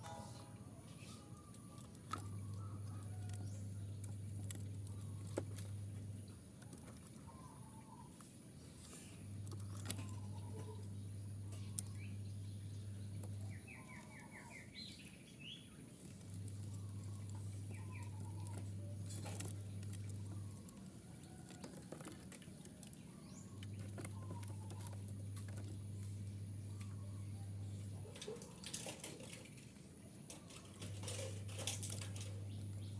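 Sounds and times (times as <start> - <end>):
low steady hum: 0.0 - 32.9
small birds chirping: 0.0 - 32.9.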